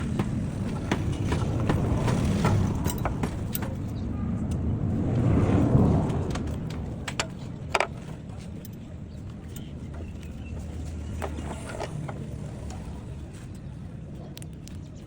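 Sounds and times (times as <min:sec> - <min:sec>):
scattered clicks and knocks: 0:00.0 - 0:04.6, 0:06.3 - 0:13.0
vehicle engine rumbling: 0:00.0 - 0:15.0.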